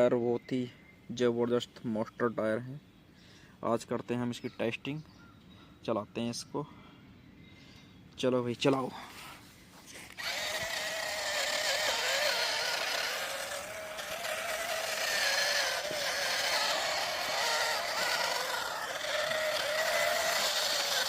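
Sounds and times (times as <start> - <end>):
toy motor and gearbox whining: 10.0 - 21.0.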